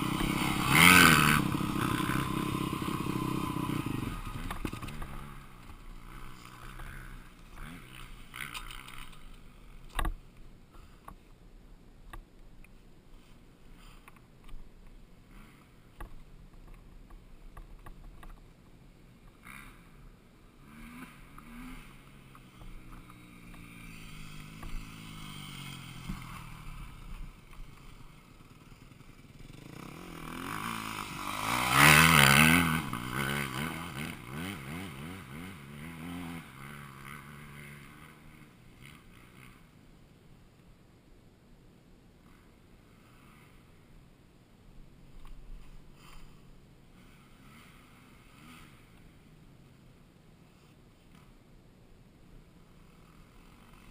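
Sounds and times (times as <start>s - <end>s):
dirt bike engines revving: 0.0s - 10.0s, 19.3s - 39.8s, 45.9s - 49.4s.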